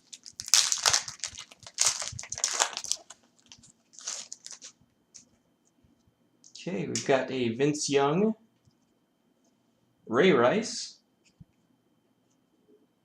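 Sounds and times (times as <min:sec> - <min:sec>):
card pack wrapper tearing: 0:00.0 - 0:04.7.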